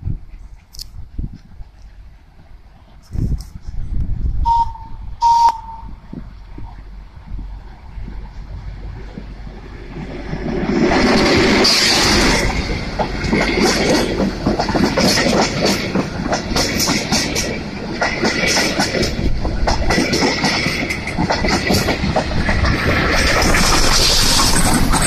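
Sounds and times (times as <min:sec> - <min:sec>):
diesel locomotive passing: 0:01.5 - 0:25.0
wheels clattering over rail joints: 0:08.9 - 0:25.0.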